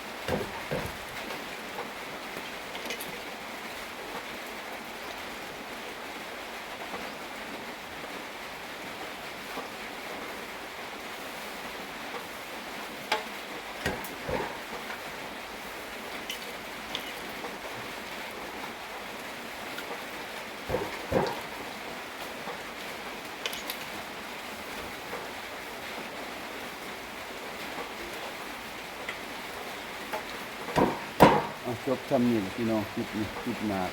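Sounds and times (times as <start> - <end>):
steady rain falling: 0.0 - 33.9
sharp knocks: 0.3 - 1.3, 13.8 - 15.0, 20.7 - 21.6, 30.2 - 33.9.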